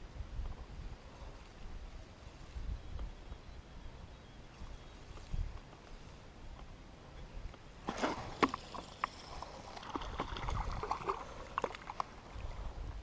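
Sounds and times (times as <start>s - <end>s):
water splashing: 7.8s - 12.7s.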